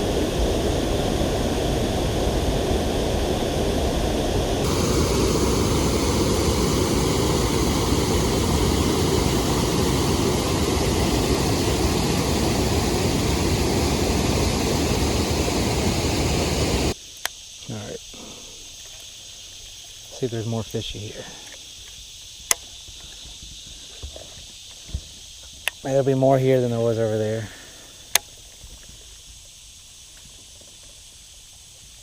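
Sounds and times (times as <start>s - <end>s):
water rushing over waterfall: 0.0s - 17.0s.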